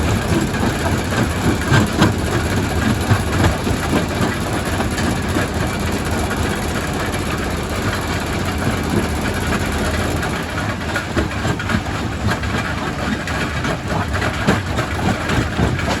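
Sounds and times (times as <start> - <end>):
rock crusher humming: 0.0 - 12.0.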